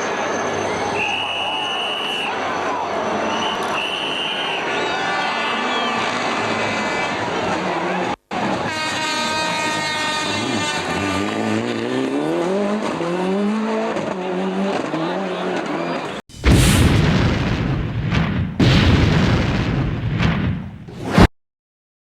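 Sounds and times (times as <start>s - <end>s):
rally car at full throttle: 5.4s - 16.2s
rally car engine revving: 9.6s - 16.1s.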